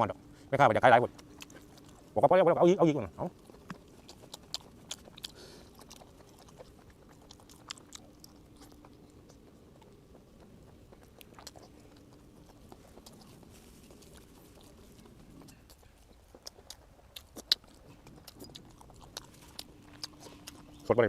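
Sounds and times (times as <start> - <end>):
close-up chewing: 0.0 - 21.0
faint low hum: 0.0 - 21.0
wet mouth clicks: 3.2 - 21.0.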